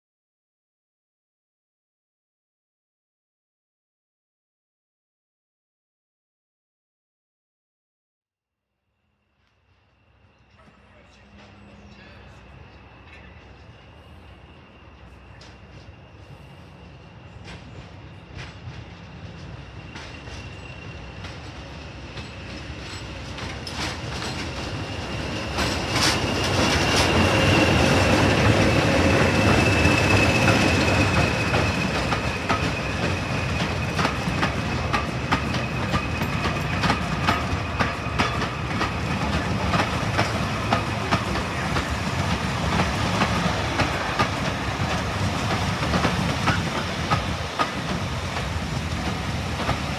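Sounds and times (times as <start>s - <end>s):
diesel train passing: 9.6s - 49.9s
high wheel squeal: 24.2s - 48.2s.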